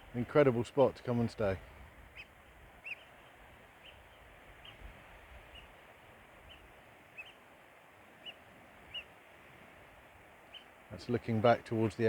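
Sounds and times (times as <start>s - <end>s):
faint outdoor hiss: 0.0s - 12.0s
bird chirping: 2.2s - 4.8s, 6.5s - 7.4s, 8.2s - 9.1s, 10.5s - 10.7s.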